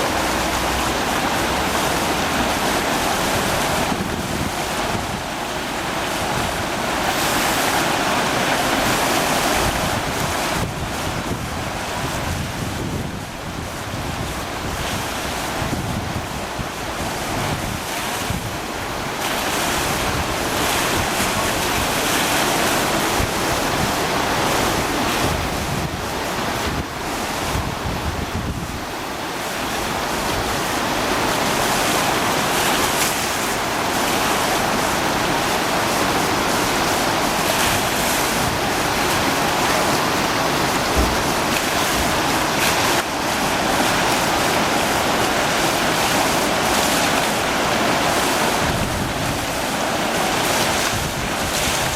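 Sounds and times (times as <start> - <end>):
river water rushing: 0.0 - 51.9
wind on microphone: 0.0 - 51.9.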